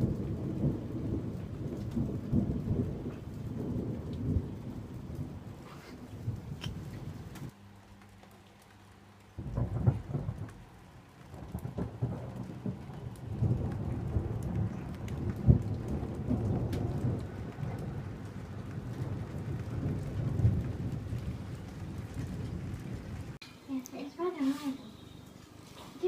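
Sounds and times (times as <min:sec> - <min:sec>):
thunder rumbling: 0:00.0 - 0:07.6, 0:09.2 - 0:23.4
rain falling: 0:00.0 - 0:26.0.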